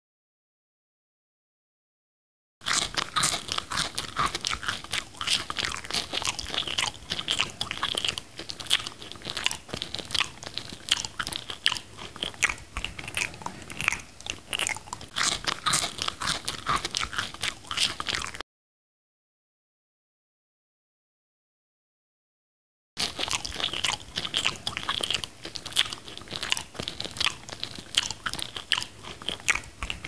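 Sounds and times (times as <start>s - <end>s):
crunchy chewing: 2.6s - 18.4s, 23.0s - 30.0s.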